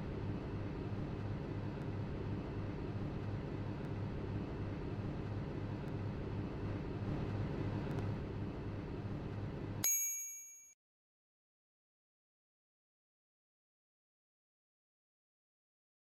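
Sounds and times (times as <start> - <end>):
microwave oven humming: 0.0 - 9.8
microwave chime: 9.8 - 10.8.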